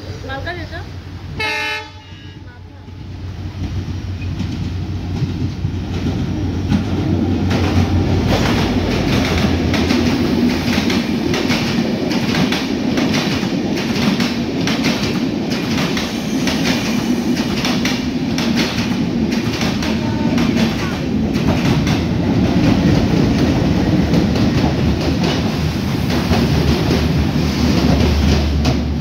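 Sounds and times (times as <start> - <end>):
locomotive engine hum: 0.0 - 14.6
train wheels clattering over rail joints: 3.5 - 29.0.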